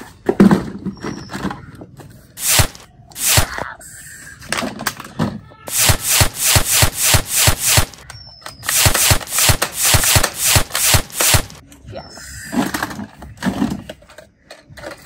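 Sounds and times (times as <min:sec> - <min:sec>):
toy machine gun shots: 0:02.4 - 0:03.6, 0:05.7 - 0:11.6.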